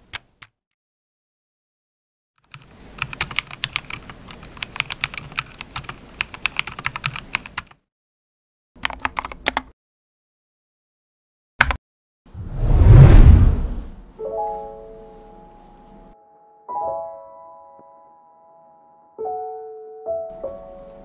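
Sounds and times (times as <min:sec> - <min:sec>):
mechanical keyboard typing: 0:02.4 - 0:07.8, 0:08.8 - 0:09.7.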